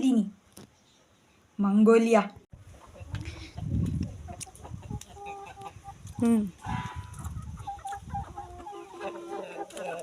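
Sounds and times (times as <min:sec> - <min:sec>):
chickens clucking: 0:02.6 - 0:10.0.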